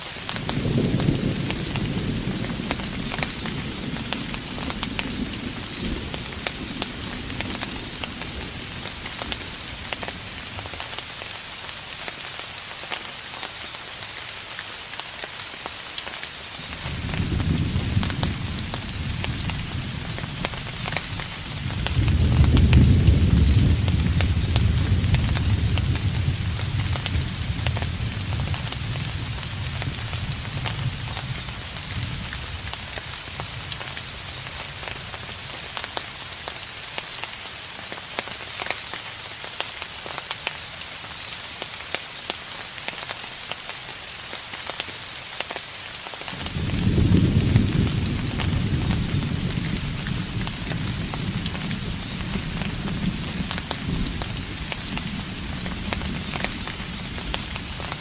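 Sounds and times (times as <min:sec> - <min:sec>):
rain pattering: 0:00.0 - 0:58.0
thunder rumbling: 0:00.3 - 0:10.9, 0:16.7 - 0:33.9, 0:46.4 - 0:58.0.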